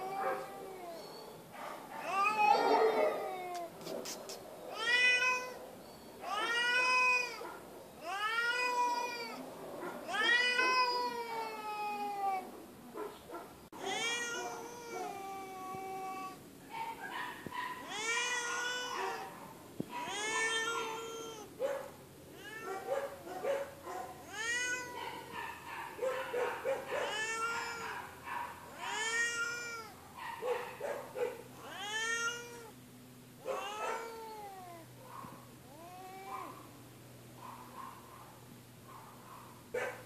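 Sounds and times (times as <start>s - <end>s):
cat meowing loudly: 2.1s - 3.8s, 4.7s - 5.6s, 6.2s - 7.4s, 8.0s - 9.4s, 10.1s - 12.5s, 13.8s - 16.4s, 17.8s - 19.2s, 19.9s - 21.5s, 22.4s - 22.7s, 24.2s - 25.0s, 27.0s - 28.0s, 28.8s - 29.9s, 31.6s - 32.7s, 33.5s - 34.9s.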